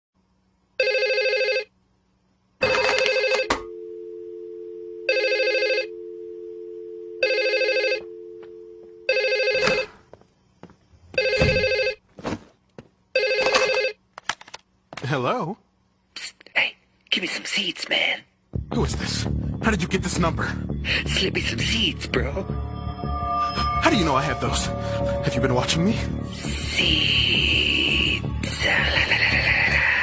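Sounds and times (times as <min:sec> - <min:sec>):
telephone ringing: 0:00.8 - 0:01.7, 0:02.6 - 0:10.0, 0:11.2 - 0:12.0, 0:13.1 - 0:14.0
steady two-note tone: 0:21.8 - 0:26.5.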